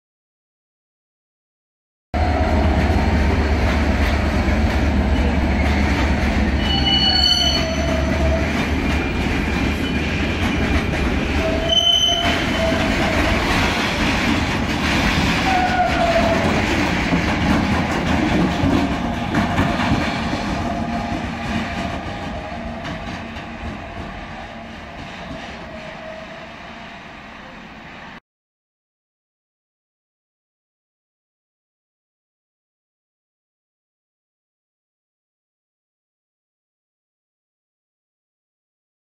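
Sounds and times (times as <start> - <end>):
freight wagons rumbling on rails: 2.2 - 27.8
electric locomotive passing: 2.2 - 28.2
wheels squealing: 5.1 - 10.7, 11.3 - 14.0.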